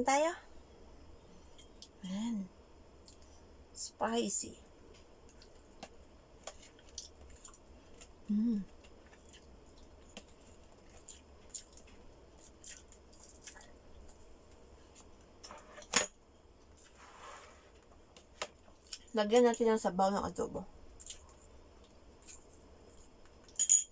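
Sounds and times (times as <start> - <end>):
chewing food: 5.2 - 15.3, 20.9 - 23.6
person humming: 8.3 - 8.7.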